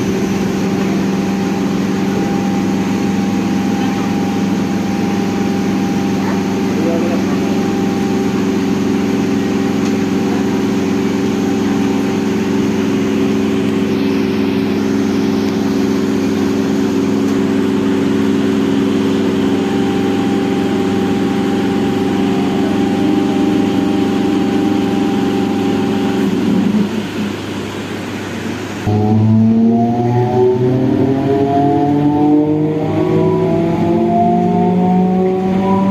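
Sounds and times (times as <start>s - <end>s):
train droning hum: 0.0s - 35.9s.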